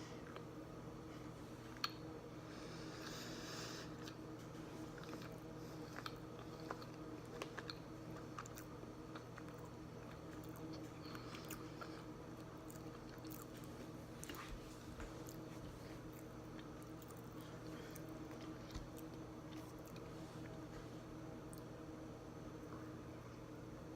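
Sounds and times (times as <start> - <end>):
steady low hum: 0.0 - 23.9
person chewing: 3.8 - 20.6.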